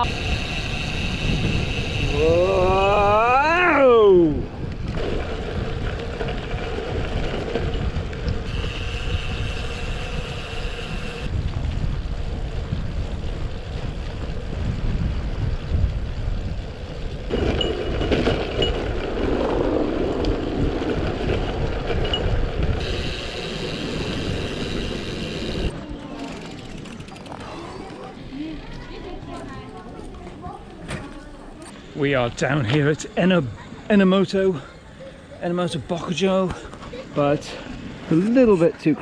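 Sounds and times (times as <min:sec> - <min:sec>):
wind rushing over microphone: 0:00.0 - 0:25.8
bicycle road rumble: 0:00.0 - 0:33.7.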